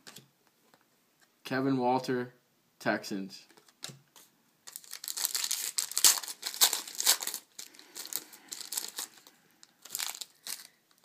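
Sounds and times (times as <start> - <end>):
wrapper crinkling and tearing: 4.7 - 11.0.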